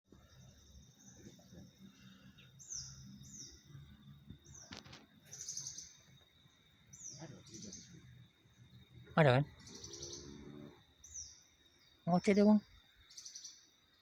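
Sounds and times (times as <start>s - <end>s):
small bird chirping: 0.1s - 14.0s.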